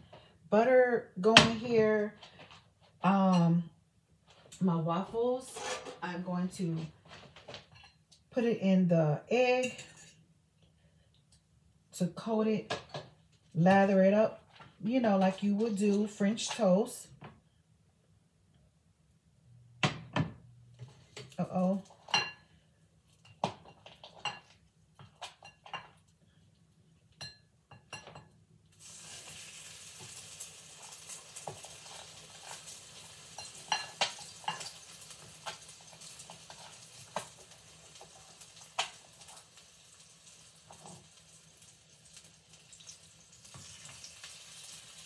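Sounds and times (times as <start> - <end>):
dishes clinking: 27.2 - 28.4
waffle sizzling in butter: 28.7 - 45.0.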